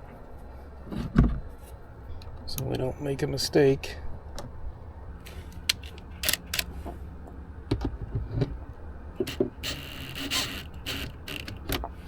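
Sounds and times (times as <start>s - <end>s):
small metallic clicks and clinks: 5.3s - 6.7s
scraping rustle: 9.3s - 11.8s.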